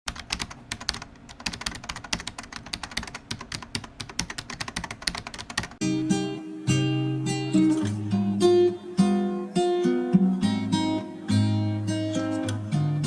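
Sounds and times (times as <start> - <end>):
keyboard typing: 0.1 - 5.8
acoustic guitar music: 5.8 - 13.0.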